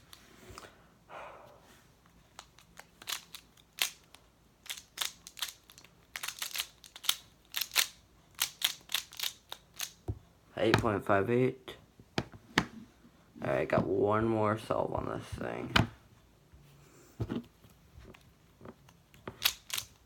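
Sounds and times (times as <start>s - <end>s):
puzzle cube plastic clicks: 2.3s - 10.0s, 18.8s - 20.0s.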